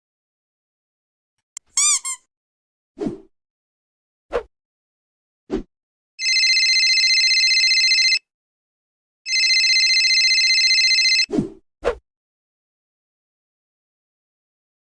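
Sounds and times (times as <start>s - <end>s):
telephone ringing: 6.2s - 8.2s, 9.3s - 11.3s.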